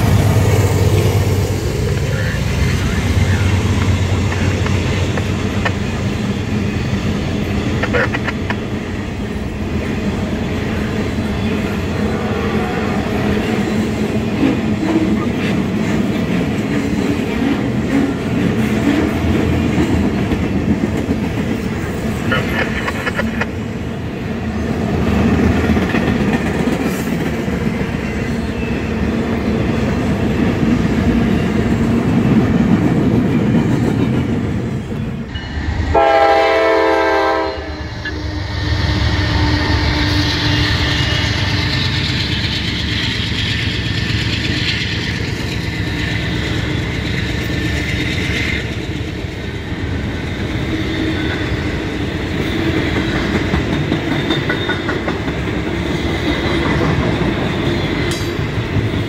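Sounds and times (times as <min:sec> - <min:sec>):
freight train rumbling past: 0:00.0 - 0:59.0
train horn blast: 0:35.8 - 0:41.7
high hiss from rails: 0:38.0 - 0:48.6
wheels clattering on rails: 0:40.5 - 0:59.0.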